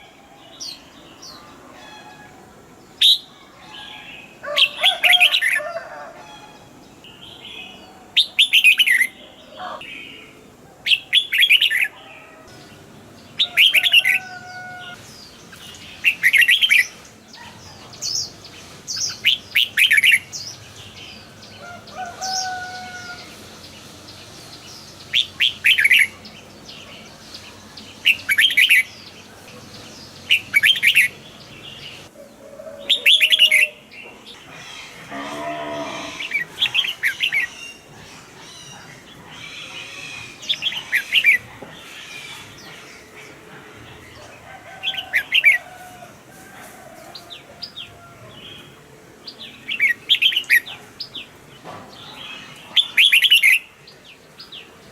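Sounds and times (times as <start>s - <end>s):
low drawn-out animal call: 34.4s - 41.0s.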